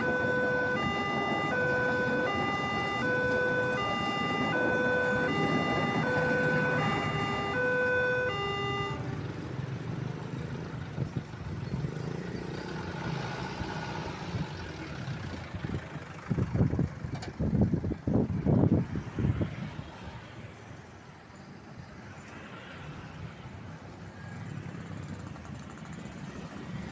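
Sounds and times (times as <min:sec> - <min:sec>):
level crossing warning alarm: 0:00.0 - 0:11.4
vehicle engine rumbling: 0:00.0 - 0:26.9.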